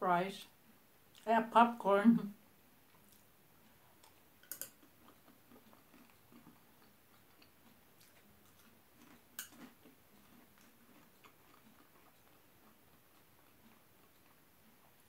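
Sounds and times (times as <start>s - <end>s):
faint chewing: 1.1s - 1.3s, 2.8s - 15.0s
metal spoon tapping bowl: 4.4s - 4.8s.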